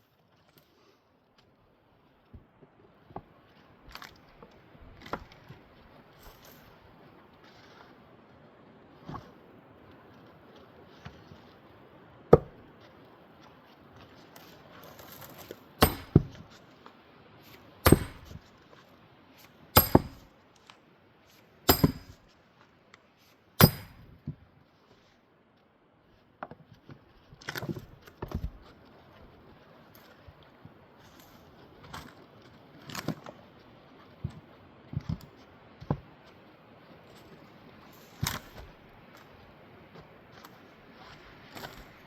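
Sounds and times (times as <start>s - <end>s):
axe blows splitting wood: 15.8s - 16.4s, 17.8s - 18.4s, 19.8s - 20.3s, 21.7s - 22.2s, 23.6s - 24.1s.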